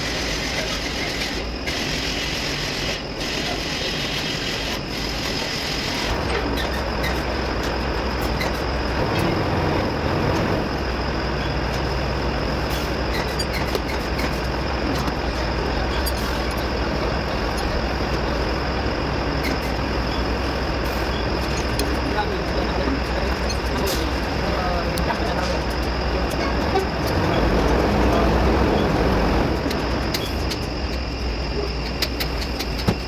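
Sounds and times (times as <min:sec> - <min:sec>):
truck diesel engine running: 0:05.7 - 0:33.0.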